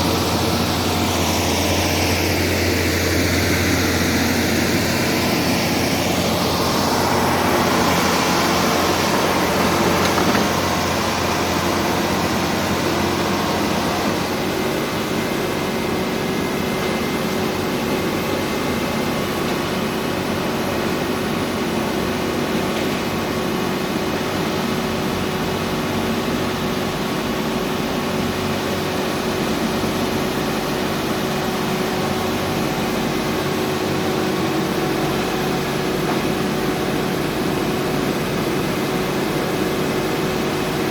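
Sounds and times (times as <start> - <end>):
diesel engine droning: 0.0 - 22.6.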